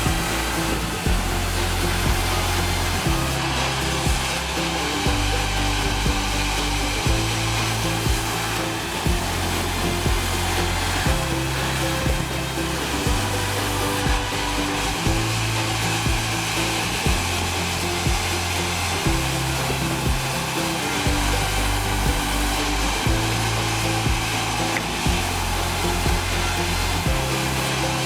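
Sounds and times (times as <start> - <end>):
background music with bass: 0.0 - 28.0
rhythmic thump: 0.0 - 28.0
sawmill machinery whooshing: 0.0 - 28.0.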